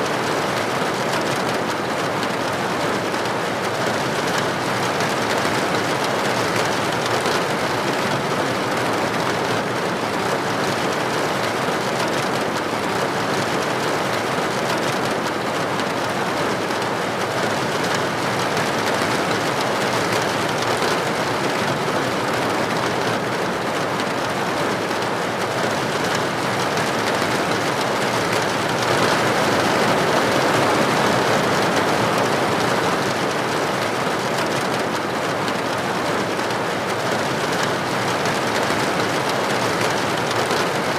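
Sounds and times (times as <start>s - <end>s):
rain falling: 0.1s - 40.9s.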